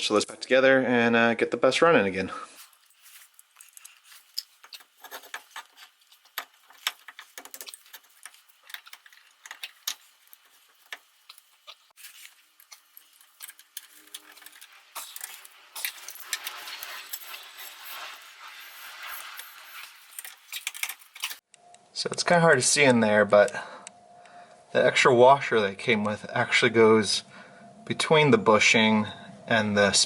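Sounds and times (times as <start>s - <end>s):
rustling: 2.5s - 21.4s.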